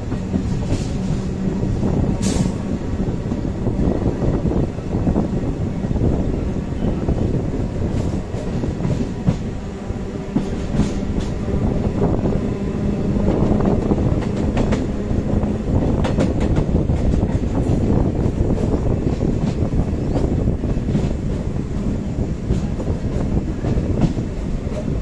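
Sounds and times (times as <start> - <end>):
train rumble and rush: 0.0 - 25.0.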